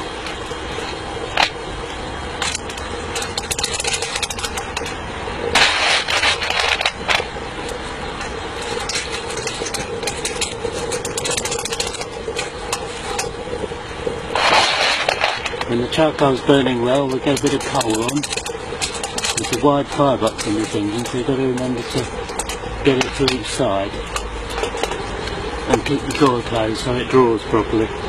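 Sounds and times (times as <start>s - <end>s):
electric fan running: 0.0s - 28.0s
loud scraping noise: 3.7s - 7.3s, 14.3s - 15.7s.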